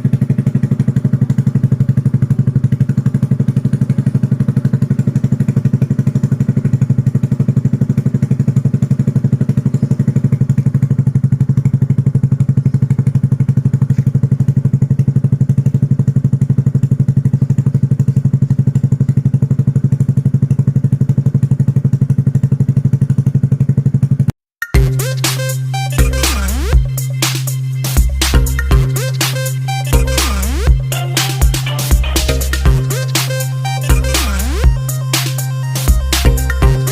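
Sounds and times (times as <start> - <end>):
scooter engine idling: 0.0 - 36.9.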